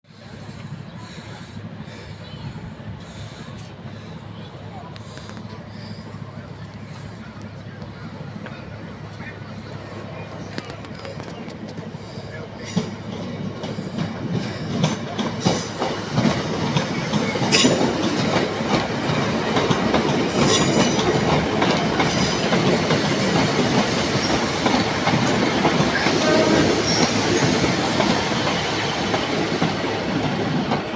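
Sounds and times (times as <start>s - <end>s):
train rumble: 0.1s - 30.9s
train wheels clicking over rails: 0.1s - 30.9s
high-pitched train squeals: 5.2s - 7.4s, 20.4s - 21.2s, 24.1s - 28.8s.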